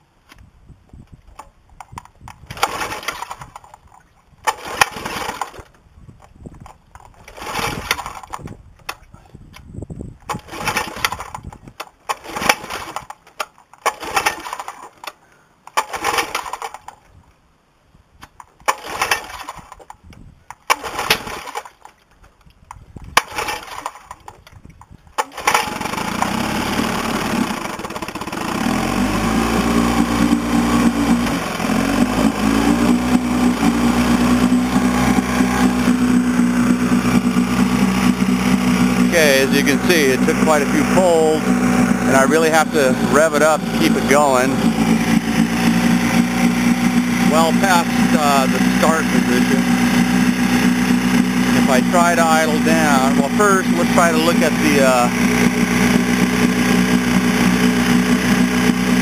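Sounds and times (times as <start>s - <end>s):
recoil starter pulls rattling whir: 1.3s - 17.1s, 18.2s - 59.0s
outboard motor running at high revs: 2.6s - 3.5s, 4.5s - 5.6s, 7.3s - 8.3s, 10.4s - 11.4s, 20.7s - 21.6s, 25.3s - 59.0s.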